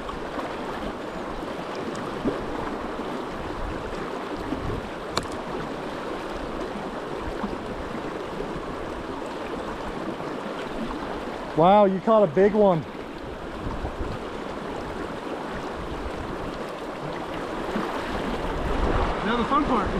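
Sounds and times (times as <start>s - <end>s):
river current rushing: 0.0s - 19.9s.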